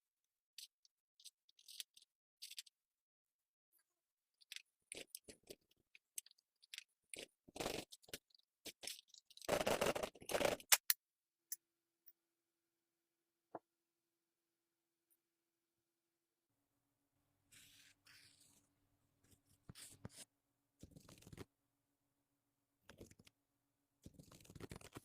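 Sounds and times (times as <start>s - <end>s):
small parts clicking and tapping: 0.6s - 2.8s, 4.4s - 9.7s.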